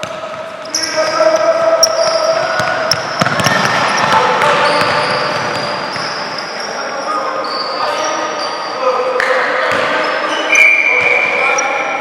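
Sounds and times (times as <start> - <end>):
basketball bouncing on court: 0.0 - 0.6, 1.8 - 6.2, 9.2 - 10.0.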